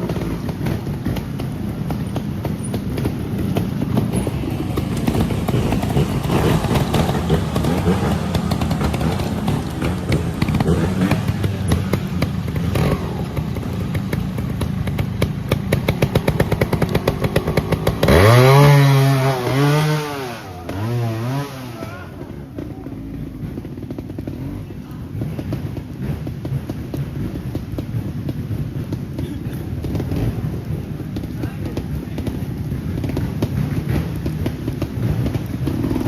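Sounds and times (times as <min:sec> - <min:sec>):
motorcycle engine idling: 0:00.0 - 0:36.0
motorcycle throttle blips: 0:00.0 - 0:36.0.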